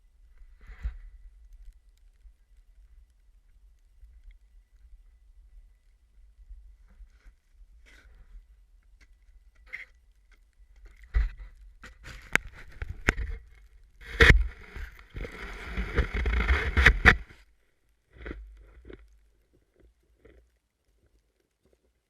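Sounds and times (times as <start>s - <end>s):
wind rumbling on microphone: 11.1s - 17.4s
scraping rush of noise: 14.0s - 17.4s.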